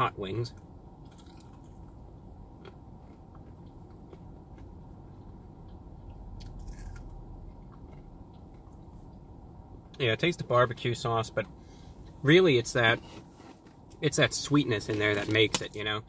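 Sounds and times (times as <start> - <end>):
crisp crunches of biting: 1.1 - 1.8, 6.4 - 7.2.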